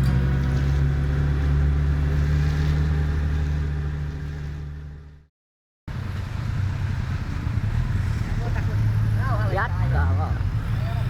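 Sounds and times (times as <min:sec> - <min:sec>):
motorcycle engine running: 0:00.0 - 0:05.3.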